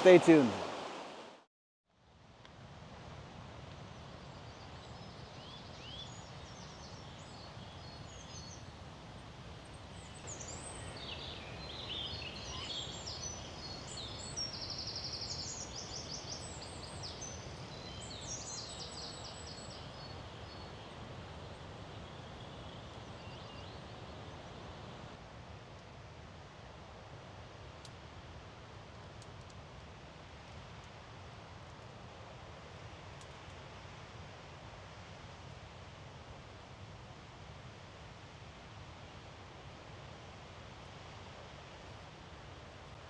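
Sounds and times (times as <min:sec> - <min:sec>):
low outdoor background noise: 0:00.0 - 0:43.0
small birds singing: 0:04.3 - 0:24.4.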